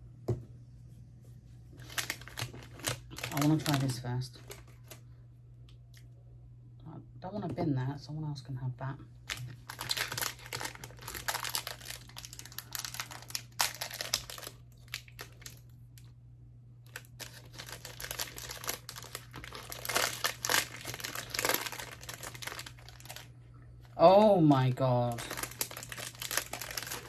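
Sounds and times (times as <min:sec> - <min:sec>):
food packaging crinkling: 0:01.8 - 0:05.1, 0:09.2 - 0:16.1, 0:16.8 - 0:23.3, 0:25.0 - 0:27.0.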